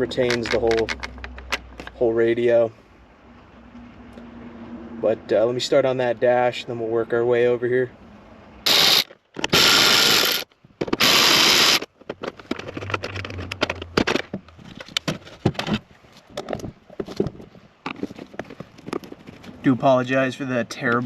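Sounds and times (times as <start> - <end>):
tools and parts clicking and scraping: 0.0 - 2.0, 8.7 - 19.6
ratchet wrench clicking: 8.7 - 10.4.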